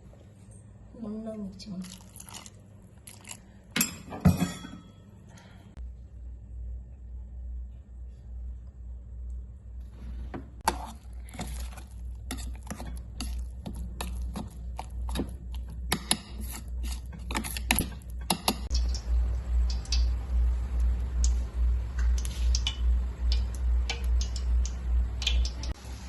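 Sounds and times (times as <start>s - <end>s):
kitchen utensils clinking: 3.8s - 5.1s
low hum: 16.6s - 26.0s.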